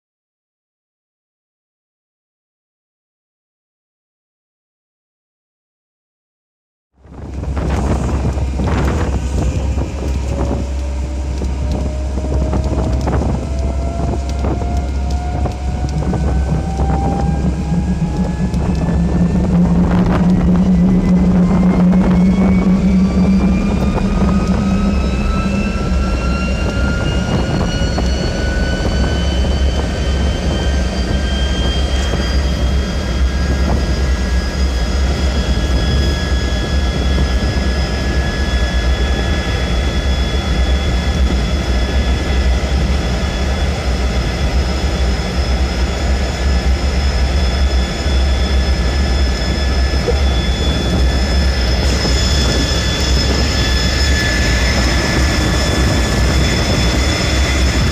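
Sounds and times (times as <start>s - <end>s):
heavy engine rumble: 7.0s - 57.9s
jet engine whine rising: 7.0s - 57.9s.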